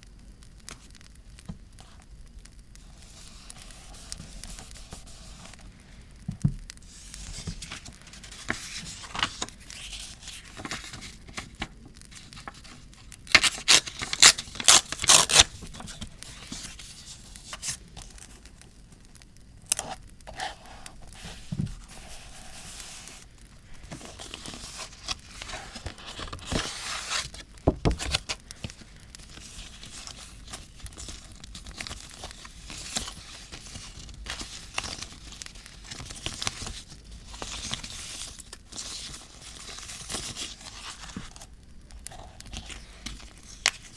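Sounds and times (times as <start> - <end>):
crisp paper rips: 6.9 - 17.8
paper crinkling and tearing: 6.9 - 18.7, 19.7 - 43.9.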